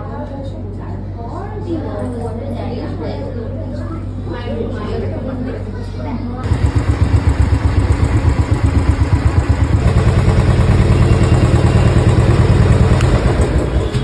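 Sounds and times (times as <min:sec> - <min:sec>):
engine idling with pulsing rumble: 0:06.4 - 0:14.0.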